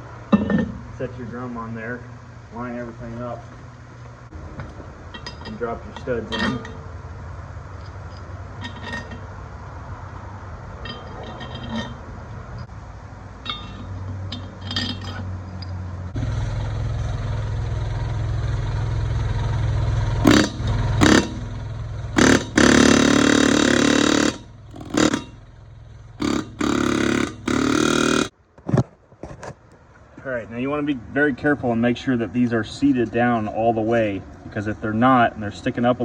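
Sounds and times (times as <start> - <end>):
steady low hum: 0.0 - 28.3
power tool trigger bursts: 20.2 - 21.5, 22.2 - 25.4, 26.2 - 28.3.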